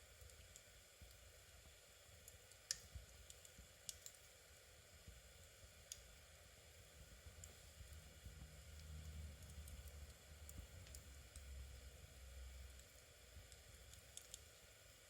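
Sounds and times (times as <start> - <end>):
low steady hum: 0.0 - 15.0
faint sharp clicks: 2.5 - 4.2, 12.8 - 14.4.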